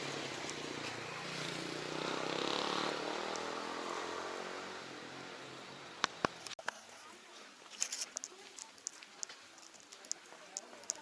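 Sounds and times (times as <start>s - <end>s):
vehicle passing: 0.0s - 6.0s.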